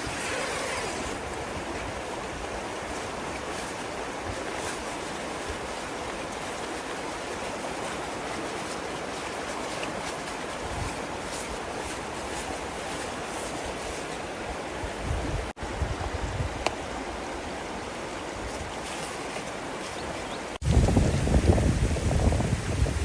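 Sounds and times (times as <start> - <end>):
river water flowing: 0.0 - 23.0.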